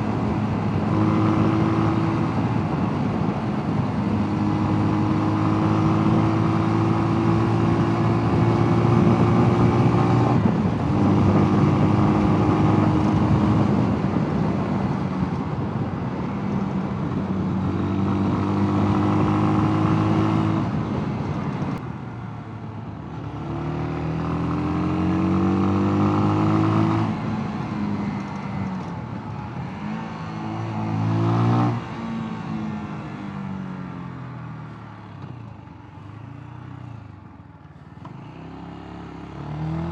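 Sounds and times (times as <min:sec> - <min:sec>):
motorcycle engine revving: 0:00.0 - 0:14.3, 0:17.0 - 0:21.8, 0:23.2 - 0:33.0, 0:37.9 - 0:39.9.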